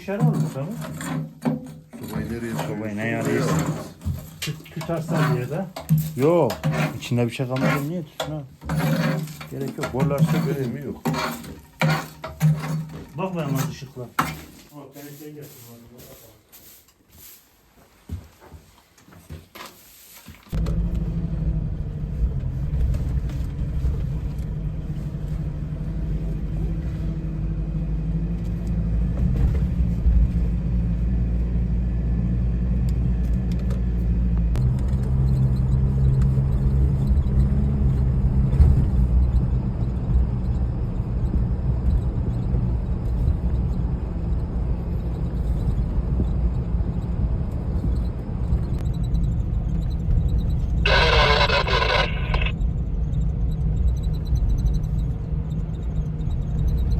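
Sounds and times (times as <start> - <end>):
vehicle engine running: 20.6 - 53.0.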